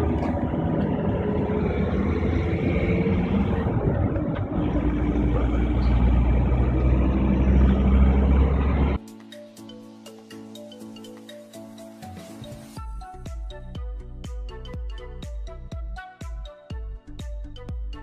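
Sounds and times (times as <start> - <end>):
vehicle engine and road noise: 0.0 - 9.1.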